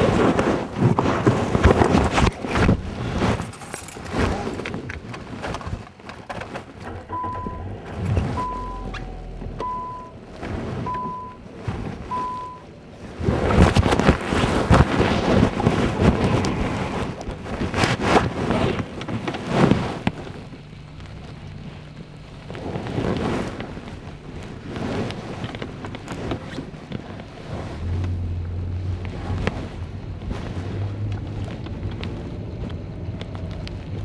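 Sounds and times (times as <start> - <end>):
wind buffeting microphone: 7.2 - 34.0
short high beeps: 8.4 - 9.0, 9.6 - 10.2, 10.9 - 11.4, 12.1 - 12.7.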